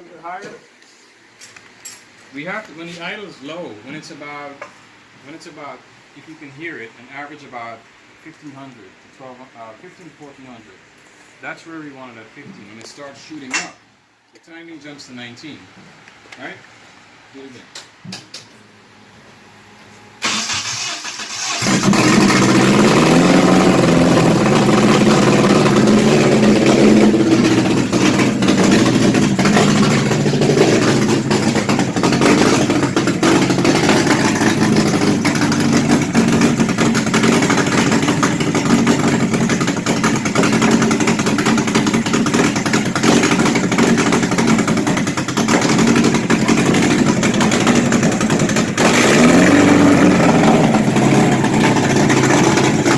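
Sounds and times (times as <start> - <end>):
car engine revving: 20.2 - 52.9.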